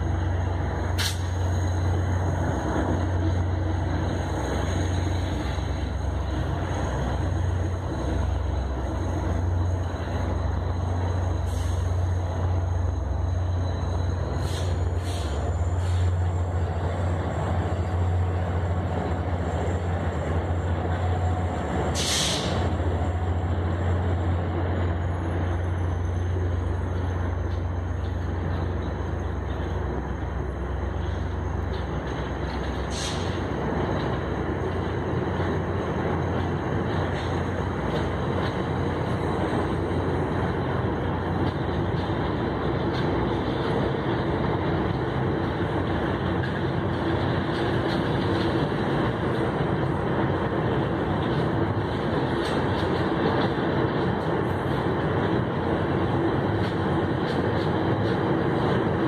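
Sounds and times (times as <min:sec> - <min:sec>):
diesel locomotive rumble: 0:00.0 - 0:59.0.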